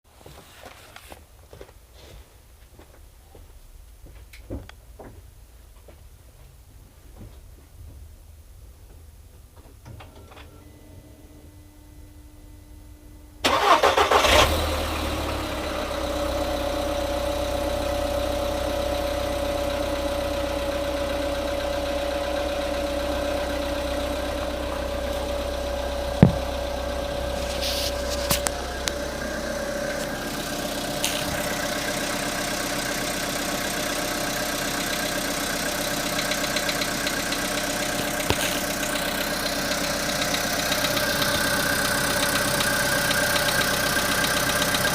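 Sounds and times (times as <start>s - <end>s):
car engine cranking and idling: 9.2s - 44.9s.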